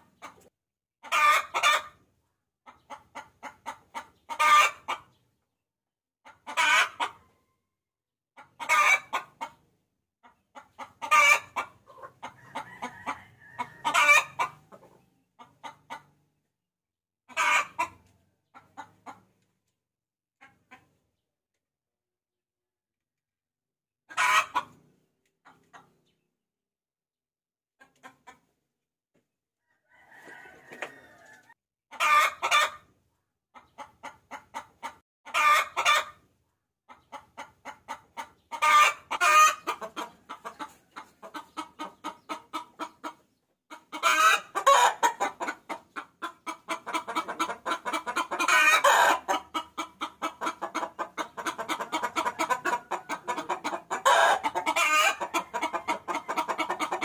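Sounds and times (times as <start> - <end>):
hen cackling: 1.0 - 2.0, 2.7 - 5.1, 6.2 - 7.2, 8.4 - 9.6, 10.6 - 16.1, 17.3 - 18.0, 24.1 - 24.8, 29.8 - 32.8, 33.8 - 36.2, 36.9 - 57.0.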